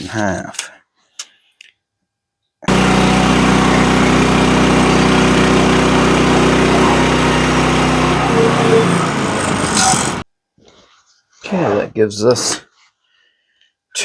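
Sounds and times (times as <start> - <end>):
sawmill engine running: 2.7 - 10.2.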